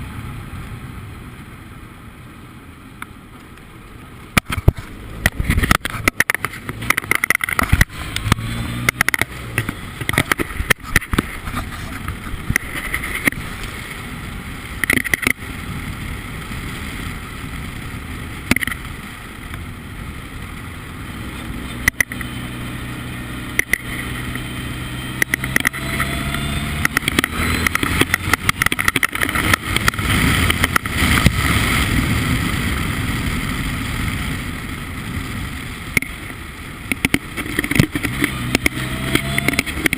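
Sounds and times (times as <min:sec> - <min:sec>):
sharp knocks and clicks: 0:04.4 - 0:13.4, 0:26.8 - 0:31.3, 0:36.9 - 0:39.9
race car engine accelerating: 0:21.8 - 0:31.3, 0:37.5 - 0:39.9.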